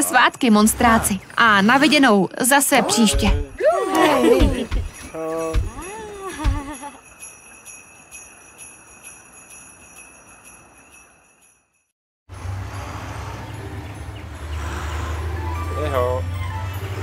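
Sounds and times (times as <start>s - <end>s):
jingle bells shaken rhythmically: 4.1s - 11.7s.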